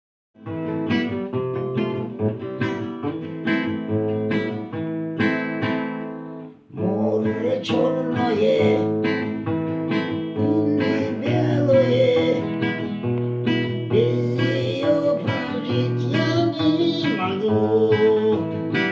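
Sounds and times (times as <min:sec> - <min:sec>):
acoustic guitar picking: 0:00.4 - 0:18.9
person singing: 0:06.7 - 0:09.2, 0:10.3 - 0:12.7, 0:13.9 - 0:18.9.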